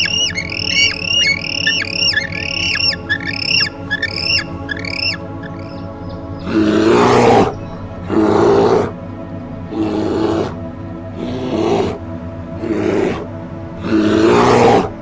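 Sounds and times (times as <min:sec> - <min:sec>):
high squeaky animal calls: 0:00.0 - 0:05.8
background music: 0:00.0 - 0:15.0
rasping animal roars: 0:06.4 - 0:09.0, 0:09.7 - 0:15.0.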